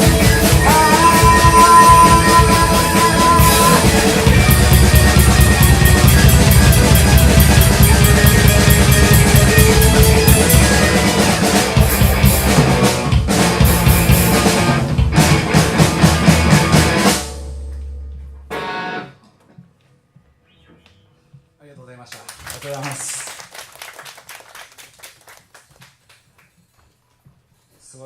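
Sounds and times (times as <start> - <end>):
drum kit with cymbal strokes: 0.0 - 18.7
bass guitar: 0.0 - 19.2
electric guitar: 0.0 - 19.6.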